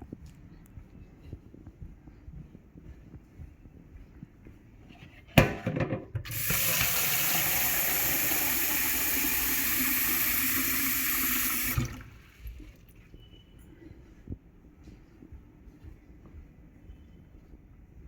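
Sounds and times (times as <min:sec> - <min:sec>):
water running: 0:06.2 - 0:12.9.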